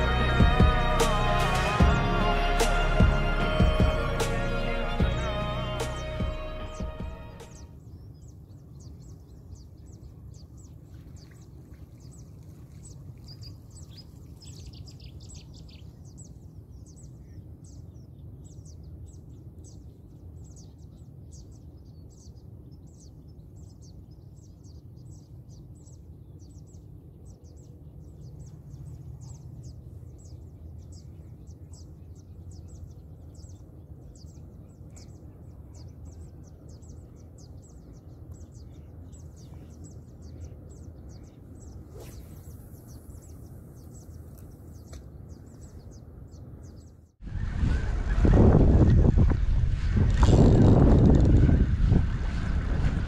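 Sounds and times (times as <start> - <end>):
steady low rumble: 0.0 - 9.2, 27.4 - 53.0
small bird chirping: 12.8 - 47.2.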